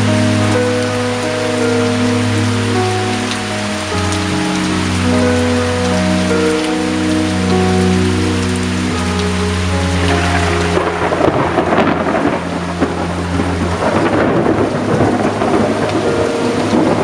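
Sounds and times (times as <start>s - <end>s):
heavy rain pouring: 0.0s - 17.0s
low thunder rumbling: 9.0s - 17.0s.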